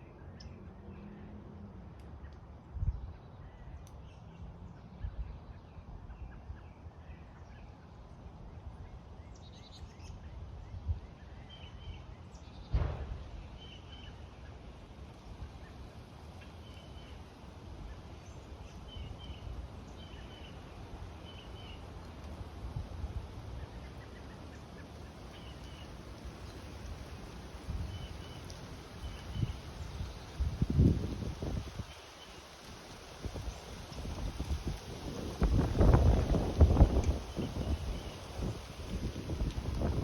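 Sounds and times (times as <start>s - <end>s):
birds chirping: 23.6s - 30.5s.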